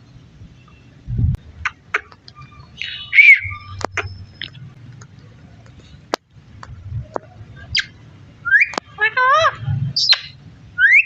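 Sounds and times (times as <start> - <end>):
parakeet squawk: 1.6 - 4.2, 7.7 - 11.0
parakeet chirps and clicks: 10.0 - 10.4.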